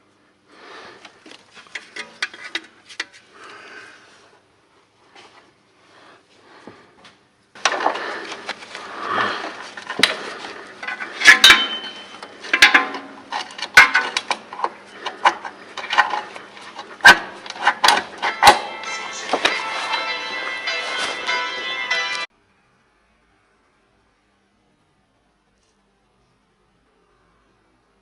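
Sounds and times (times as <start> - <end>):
metal hand tools clinking and knocking: 9.6 - 21.1.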